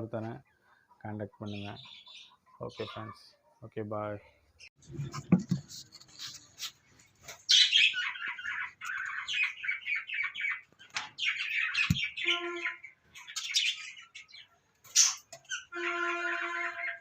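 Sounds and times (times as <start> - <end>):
budgerigars chattering and squawking: 0.2 - 3.4, 6.6 - 15.8.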